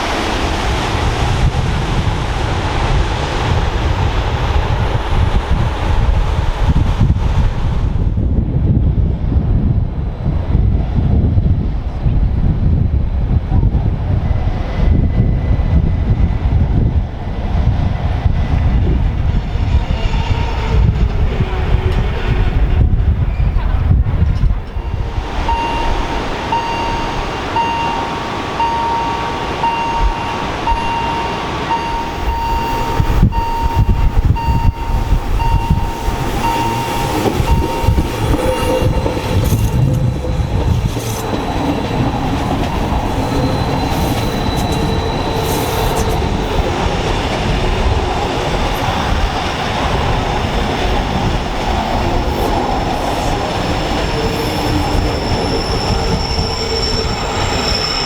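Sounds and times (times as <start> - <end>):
train running: 0.0 - 58.0
train wheels squealing: 19.3 - 23.7, 24.7 - 58.0
beeping tone: 24.7 - 38.9.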